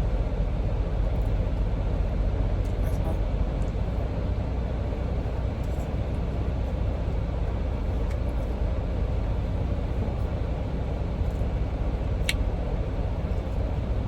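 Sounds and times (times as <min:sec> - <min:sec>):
truck rumble inside cab: 0:00.0 - 0:14.0.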